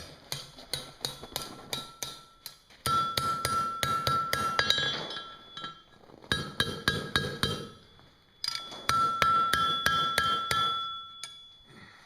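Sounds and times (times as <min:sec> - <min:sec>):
hammer striking steel on anvil: 0:00.0 - 0:11.7.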